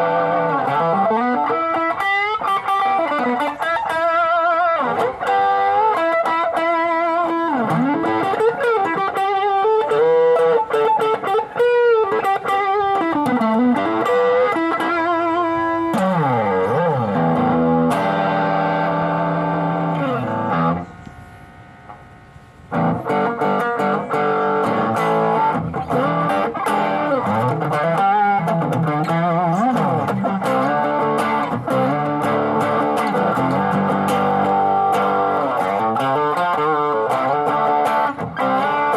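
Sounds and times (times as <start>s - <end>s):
distorted electric guitar: 0.0s - 38.9s.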